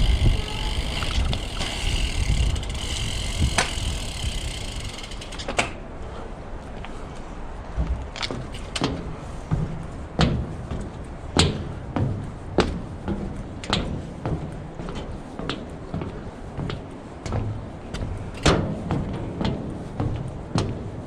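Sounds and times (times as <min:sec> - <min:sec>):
bike and camera rattling: 0:00.0 - 0:05.9
steady low rumble: 0:00.0 - 0:21.0.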